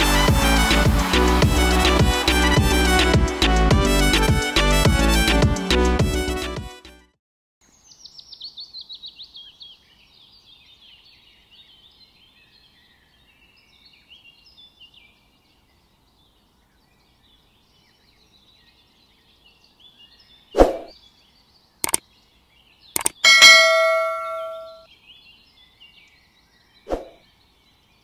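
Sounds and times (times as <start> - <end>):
birds chirping: 17.1 - 28.0
sharp click: 21.8 - 22.0, 23.0 - 24.7.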